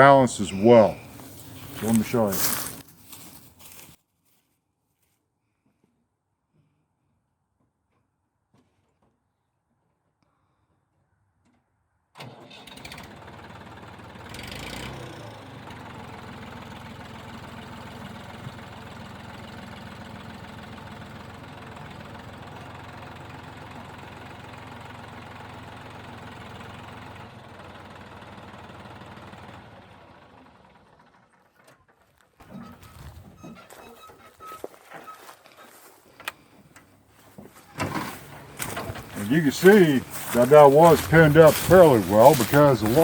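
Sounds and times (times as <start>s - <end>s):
tractor engine running: 0.0s - 4.0s, 12.2s - 31.7s, 32.4s - 43.0s.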